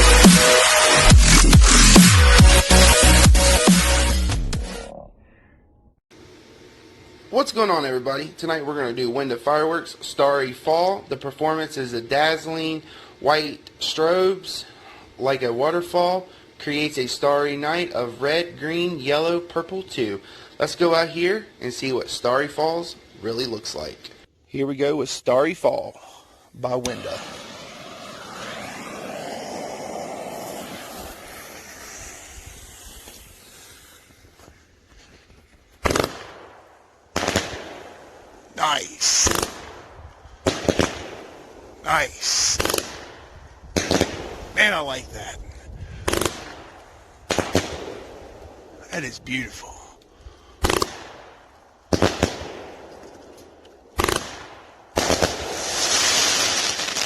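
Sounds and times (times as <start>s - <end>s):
lit fuse hissing: 26.6s - 36.1s, 38.4s - 45.4s, 55.0s - 57.0s
fireworks shots firing: 26.8s - 34.2s, 35.8s - 44.9s, 46.0s - 48.8s, 50.6s - 57.0s.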